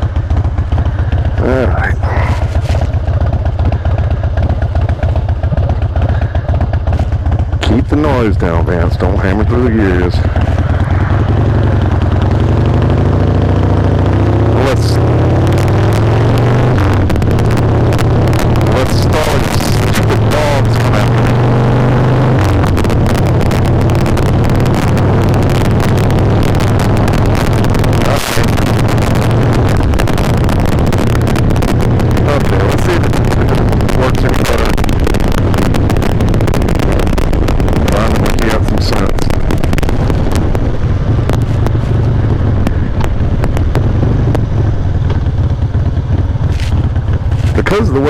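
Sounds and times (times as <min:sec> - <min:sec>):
motorcycle engine at low revs: 0:00.0 - 0:48.0
wind rushing over microphone: 0:00.0 - 0:48.0.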